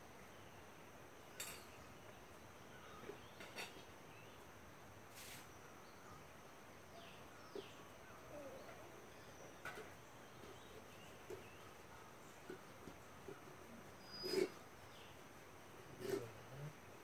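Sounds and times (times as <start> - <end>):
faint bird chirps: 1.3 - 4.5, 5.1 - 15.2.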